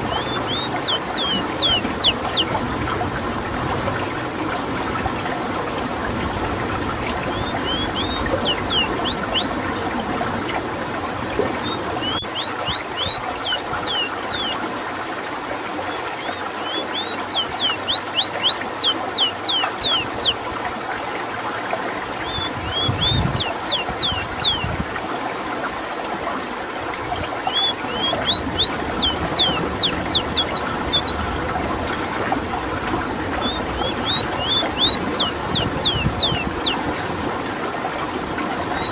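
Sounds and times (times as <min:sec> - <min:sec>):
bird singing whistled notes: 0:00.0 - 0:02.5, 0:07.3 - 0:09.6, 0:11.6 - 0:14.6, 0:16.2 - 0:20.4, 0:22.2 - 0:24.7, 0:27.4 - 0:31.3, 0:33.4 - 0:36.8
running water: 0:00.0 - 0:38.9.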